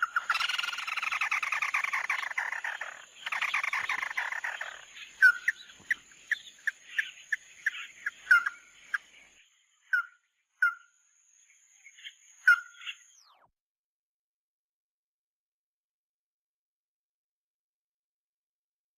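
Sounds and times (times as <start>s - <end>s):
bird trilling: 0.0s - 9.0s
short sharp bird calls: 12.0s - 13.5s.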